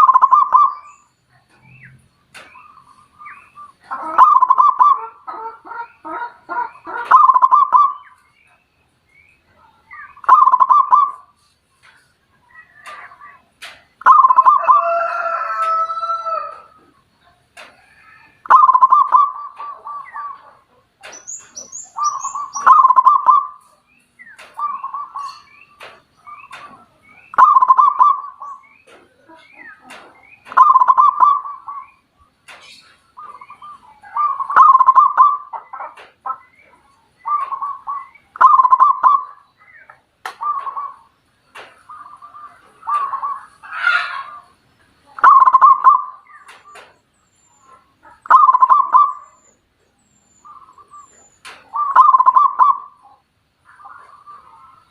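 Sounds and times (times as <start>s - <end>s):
thin high bird chirps: 21.0s - 41.1s
bird calling in short phrases: 21.1s - 23.6s, 33.1s - 41.1s, 50.4s - 53.2s.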